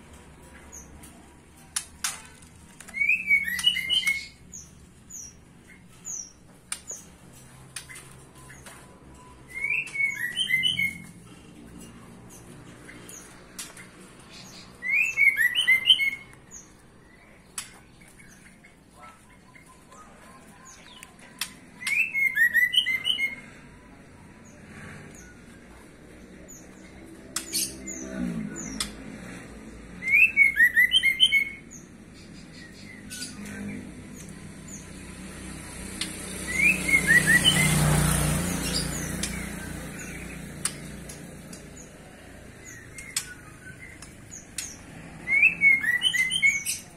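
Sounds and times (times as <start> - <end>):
faint high bird chirps: 2.8 - 6.2, 7.8 - 11.9
songbird chirping phrase: 2.8 - 6.4, 8.0 - 11.4, 30.0 - 46.9.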